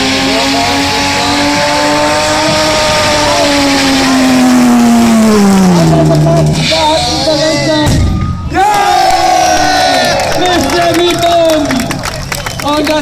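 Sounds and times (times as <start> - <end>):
car engine at high revs: 0.0 - 7.6.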